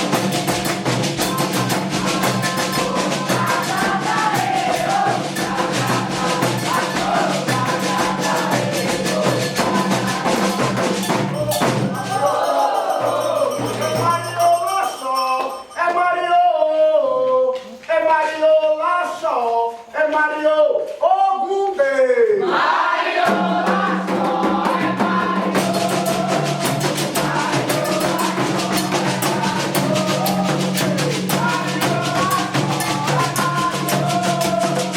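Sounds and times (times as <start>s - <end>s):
group singing: 0.0s - 15.3s, 22.2s - 34.9s
hand drums fast beat: 0.0s - 15.6s, 23.1s - 34.9s.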